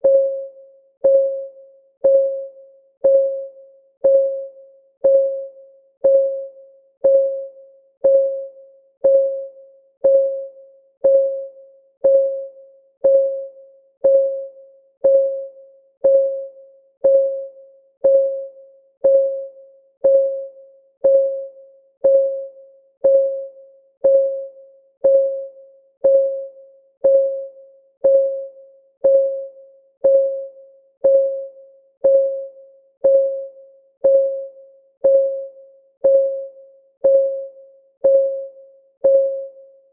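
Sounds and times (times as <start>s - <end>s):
timer ticking pings: 0.0s - 39.7s.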